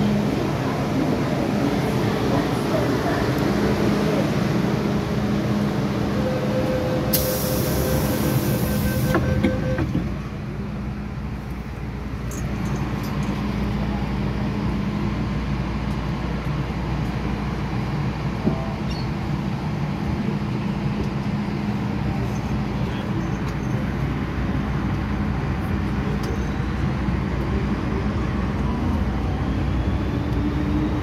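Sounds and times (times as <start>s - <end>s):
train wheels and motors rumbling: 0.0s - 31.0s.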